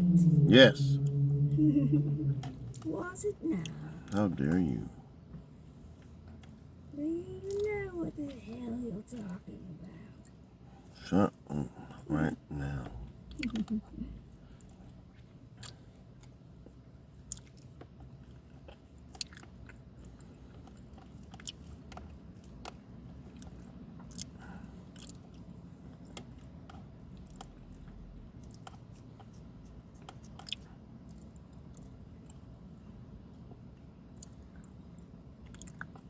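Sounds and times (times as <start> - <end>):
person chewing food: 14.5 - 32.6, 33.6 - 36.0.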